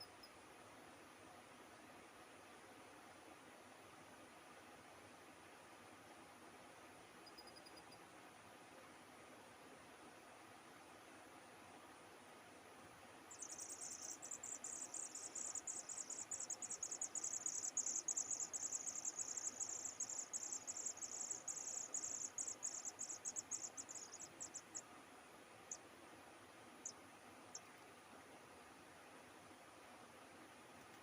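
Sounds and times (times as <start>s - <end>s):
cricket trilling: 13.3s - 24.8s.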